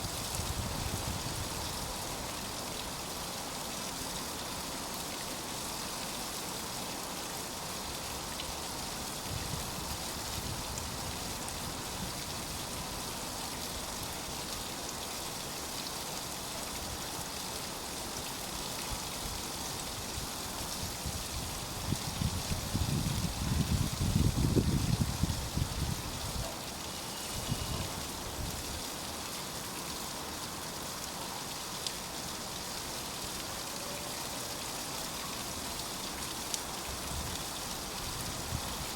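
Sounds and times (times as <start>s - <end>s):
steady hiss: 22.9s - 38.9s.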